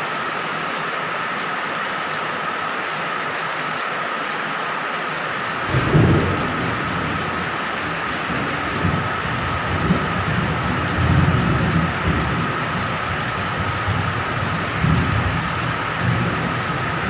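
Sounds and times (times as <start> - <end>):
heavy rain: 0.0 - 17.0
distant thunder rumbling: 5.5 - 17.0.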